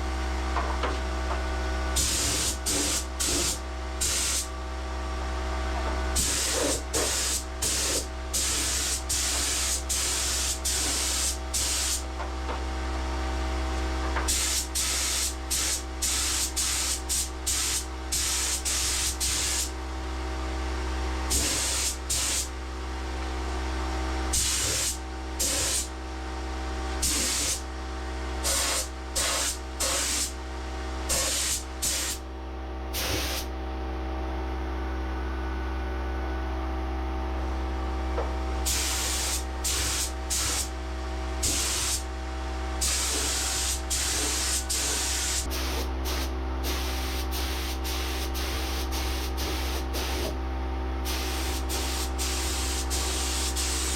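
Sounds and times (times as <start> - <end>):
spray gun hissing: 2.0 - 4.5, 6.2 - 12.0, 14.3 - 19.7, 21.3 - 22.5, 24.4 - 25.9, 27.0 - 27.6, 28.4 - 30.3, 31.1 - 32.2, 33.0 - 33.5, 38.7 - 40.7, 41.4 - 42.0, 42.8 - 50.4, 51.0 - 53.9.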